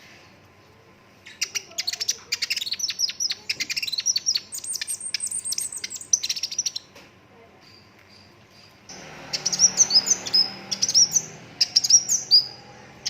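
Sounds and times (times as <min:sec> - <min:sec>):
bird singing rapid chirps: 0:01.3 - 0:06.9, 0:08.1 - 0:13.0.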